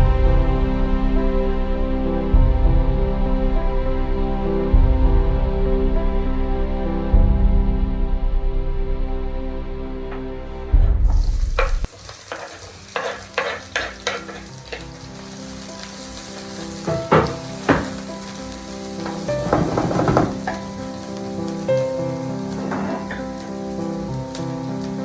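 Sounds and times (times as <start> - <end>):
food sizzling in a frying pan: 11.1 - 25.0
utensil knocking and scraping pan: 11.2 - 15.0, 16.5 - 18.1, 19.0 - 20.8, 22.6 - 23.3.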